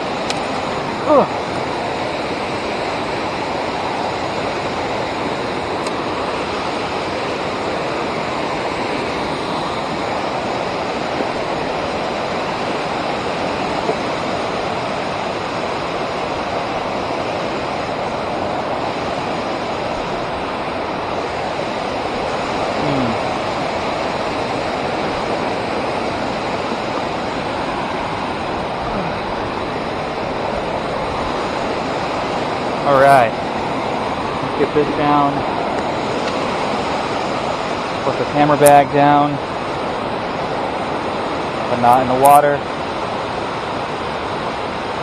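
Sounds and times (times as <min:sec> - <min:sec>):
river water rushing over dam: 0:00.0 - 0:45.0.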